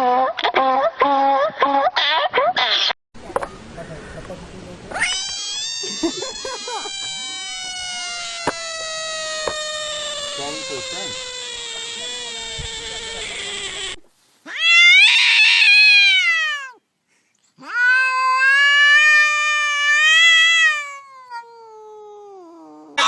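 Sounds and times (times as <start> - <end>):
animal yowling: 4.9 - 16.8, 17.6 - 23.0.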